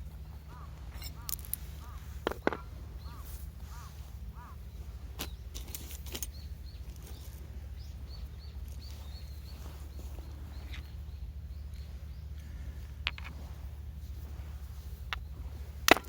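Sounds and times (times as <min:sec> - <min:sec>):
low background rumble: 0:00.0 - 0:16.0
small birds chirping: 0:00.0 - 0:16.0.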